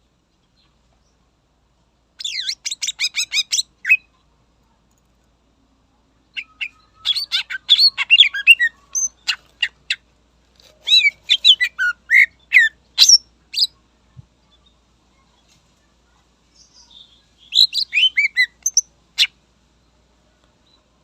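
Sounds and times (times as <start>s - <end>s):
bird singing sharp chirps: 16.6s - 18.9s.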